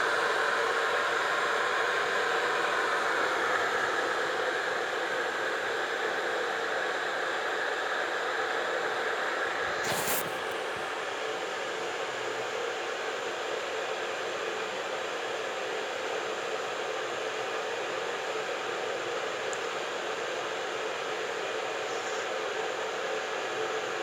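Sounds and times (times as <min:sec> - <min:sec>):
electric kettle hissing: 0:09.5 - 0:11.1.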